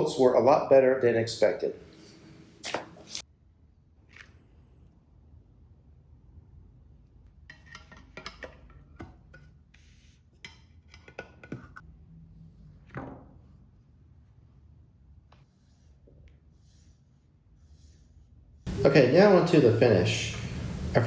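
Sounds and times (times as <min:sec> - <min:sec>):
low steady hum: 0:18.7 - 0:21.0.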